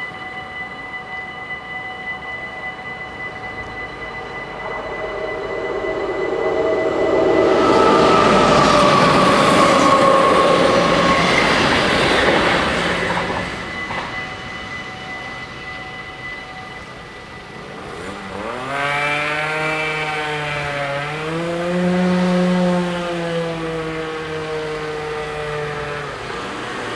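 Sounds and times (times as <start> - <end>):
level crossing bells ringing: 0.0 - 26.9
train passing at speed: 0.0 - 26.9
vehicle engine accelerating: 3.4 - 13.9, 17.5 - 26.9.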